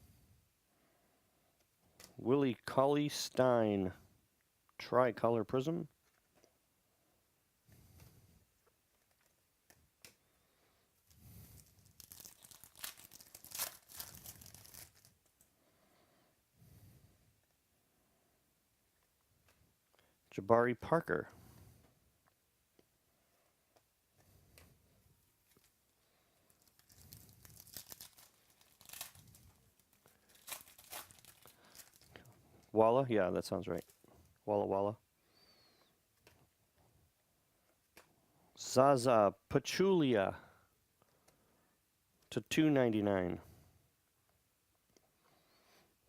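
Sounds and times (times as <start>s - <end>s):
foil wrapper tearing and crinkling: 11.4s - 15.4s, 26.5s - 32.3s.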